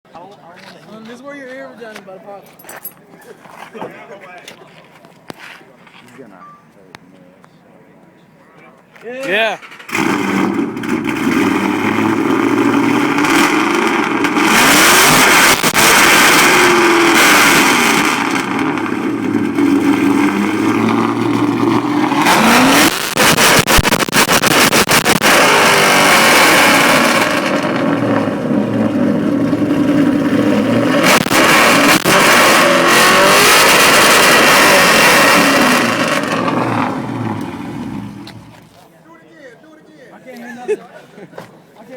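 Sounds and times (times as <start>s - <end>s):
loud car engine revving: 9.8s - 38.6s.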